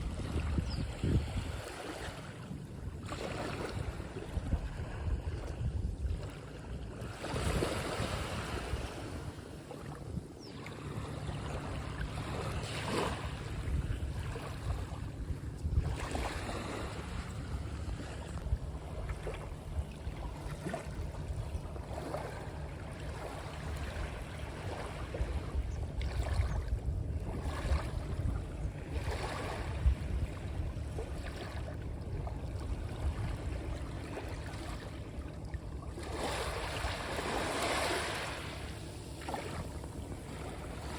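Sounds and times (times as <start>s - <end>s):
sea waves washing in: 1.2s - 26.5s, 27.1s - 40.9s
steady low rumble: 8.2s - 36.0s.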